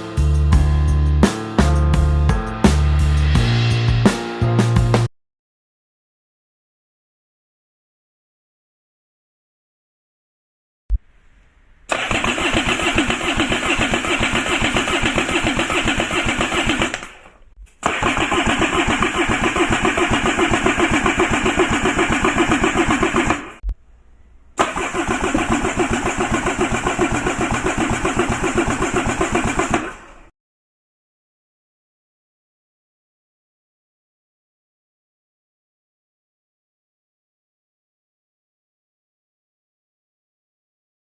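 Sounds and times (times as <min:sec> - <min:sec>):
engine starter cranking: 0:11.0 - 0:30.3
click: 0:16.9 - 0:17.9.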